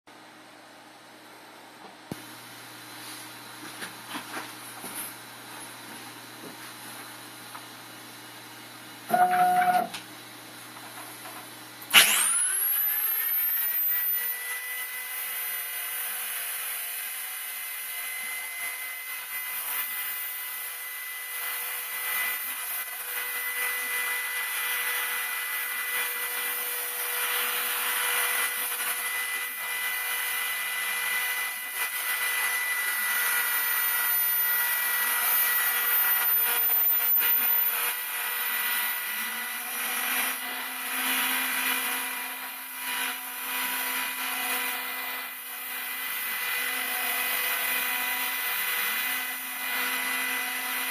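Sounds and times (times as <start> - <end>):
router spindle whining while milling: 7.3 - 50.9.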